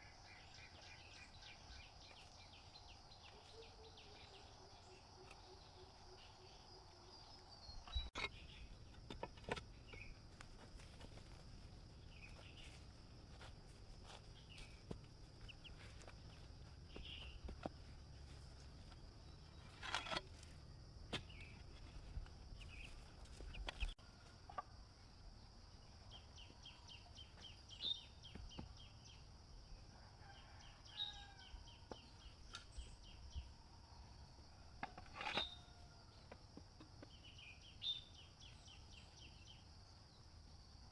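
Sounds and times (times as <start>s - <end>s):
chickens and birds chirping: 0.0s - 20.2s, 21.2s - 24.9s.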